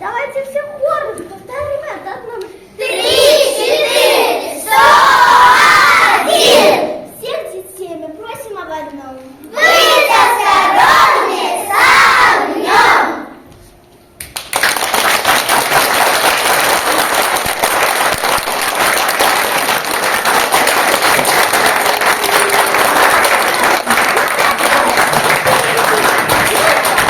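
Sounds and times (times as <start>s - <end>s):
audience applauding: 14.3s - 27.0s.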